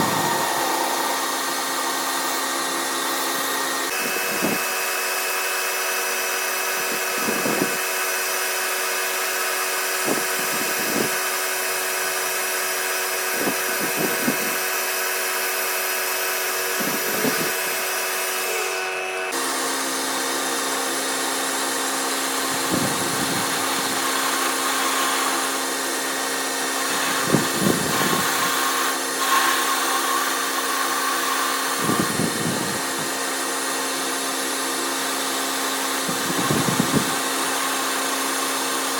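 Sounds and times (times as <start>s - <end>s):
machine motor humming: 0.0s - 4.7s.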